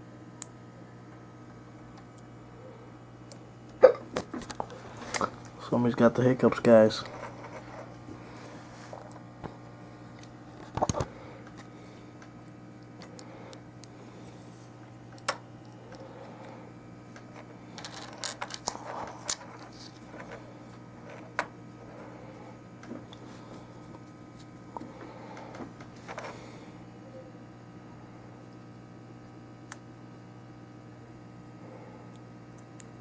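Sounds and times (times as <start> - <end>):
steady low hum: 0.0 - 33.0
small parts clicking and clinking: 17.2 - 20.4.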